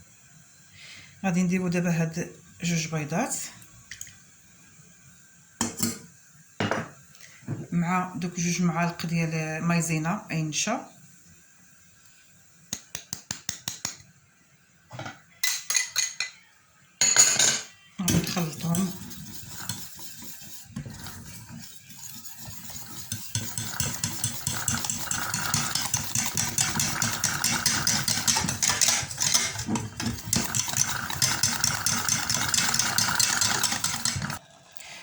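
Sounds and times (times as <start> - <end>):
whisk beating eggs in bowl: 18.1 - 34.4.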